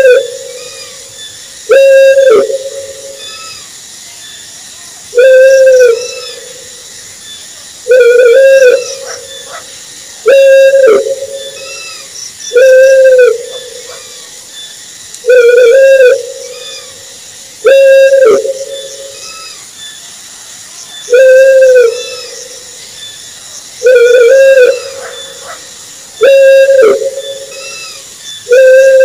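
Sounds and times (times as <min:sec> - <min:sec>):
owl hooting: 0:00.0 - 0:03.7, 0:05.2 - 0:06.8, 0:07.9 - 0:14.4, 0:15.2 - 0:17.0, 0:17.6 - 0:19.6, 0:21.1 - 0:22.6, 0:23.8 - 0:29.0.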